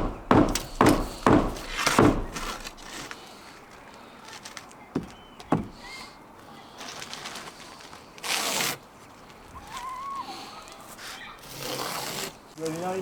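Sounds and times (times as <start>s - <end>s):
sharp knocks: 0.0s - 2.9s
thin bird calls: 4.8s - 6.8s.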